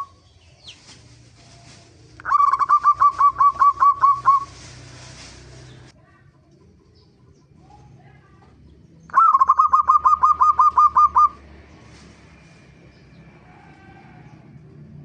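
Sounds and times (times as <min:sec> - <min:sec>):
faint bird calls: 0:00.0 - 0:04.7
dove cooing: 0:01.6 - 0:04.6, 0:09.1 - 0:11.4.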